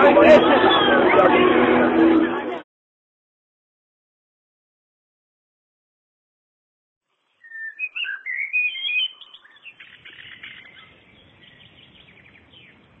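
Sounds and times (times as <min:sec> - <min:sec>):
birds chirping: 0:07.2 - 0:13.0.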